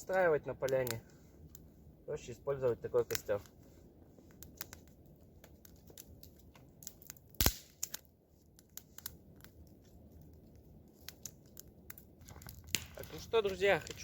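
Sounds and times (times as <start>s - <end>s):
campfire crackling and popping: 0.0s - 14.0s.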